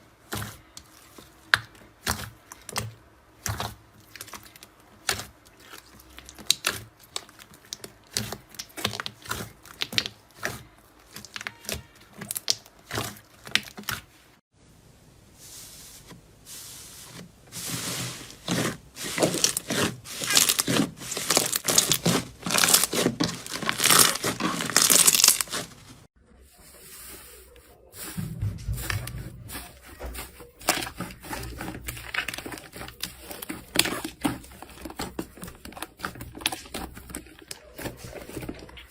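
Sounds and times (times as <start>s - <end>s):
crunchy material crackling: 15.4s - 26.7s
low thuds: 28.1s - 30.2s.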